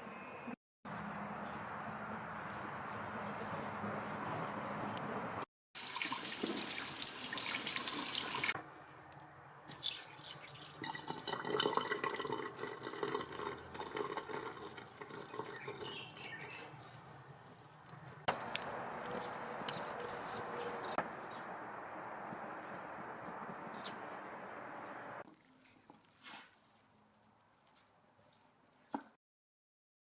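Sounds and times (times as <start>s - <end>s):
tap water running into sink: 5.8s - 8.6s.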